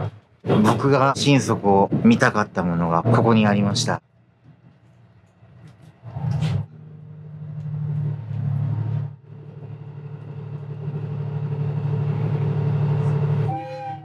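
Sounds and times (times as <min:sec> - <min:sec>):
diesel railcar humming: 0:00.0 - 0:14.0.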